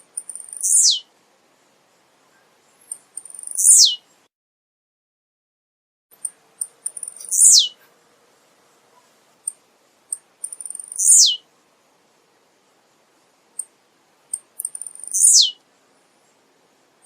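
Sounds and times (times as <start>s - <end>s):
faint high bird ticks: 0.0s - 1.1s, 2.2s - 3.9s, 6.1s - 8.0s, 8.9s - 11.4s, 13.5s - 15.6s
bird singing downsweeping note: 0.6s - 1.0s, 7.2s - 7.8s, 11.0s - 11.4s.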